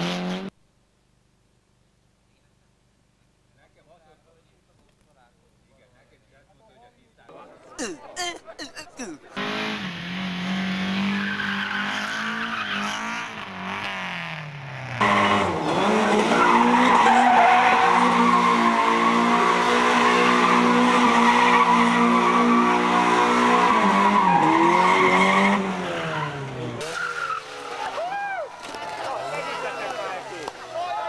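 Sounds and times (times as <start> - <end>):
rally car engine revving: 0.0 - 0.5, 9.3 - 28.0.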